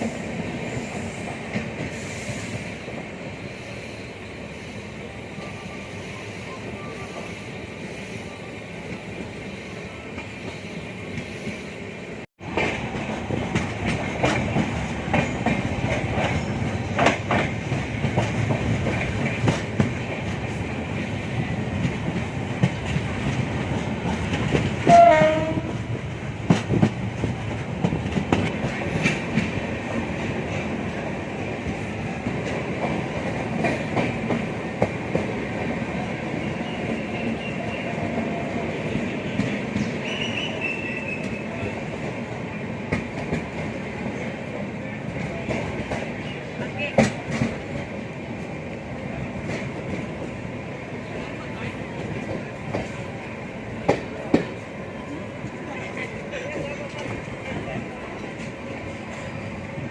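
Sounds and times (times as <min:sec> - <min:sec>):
train wheels rumbling on rail: 0:00.0 - 0:59.9
train horn blast: 0:24.8 - 0:25.8.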